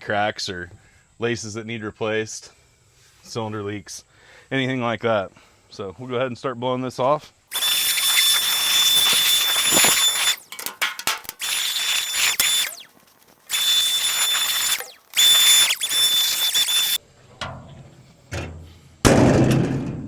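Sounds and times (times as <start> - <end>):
leaf blower rushing and whining: 7.5 - 10.4, 13.5 - 17.0
clicks: 7.5 - 12.9, 13.5 - 17.0.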